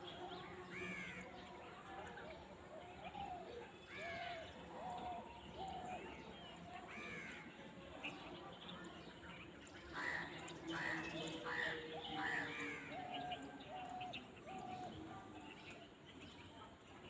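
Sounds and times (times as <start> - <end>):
birds calling: 9.4 - 16.5.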